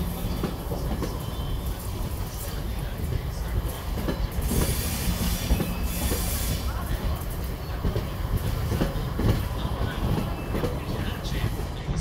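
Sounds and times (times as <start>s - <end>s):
train wheels rumbling on rails: 0.0s - 12.0s
hiss: 4.4s - 7.3s.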